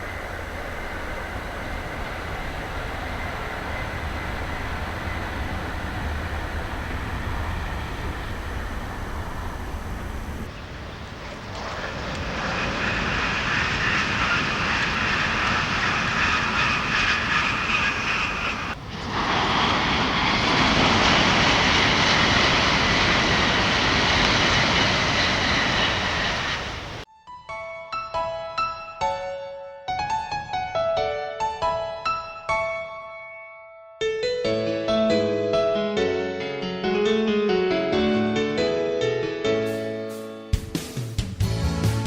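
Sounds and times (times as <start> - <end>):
train rushing past: 0.0 - 27.1, 41.0 - 42.0
piano music: 27.0 - 42.0.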